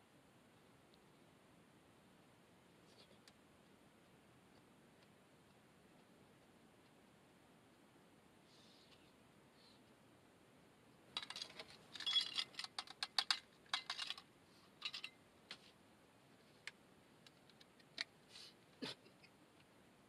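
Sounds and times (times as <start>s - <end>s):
small clicks and rattles: 11.1s - 15.8s, 16.6s - 18.2s.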